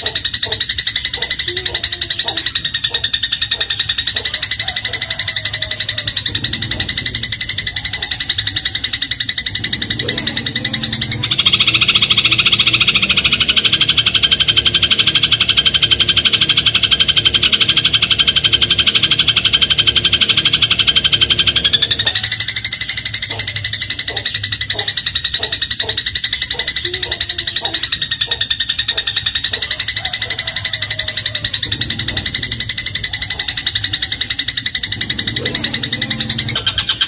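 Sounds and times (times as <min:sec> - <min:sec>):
sparrow trilling: 0:00.0 - 0:37.0.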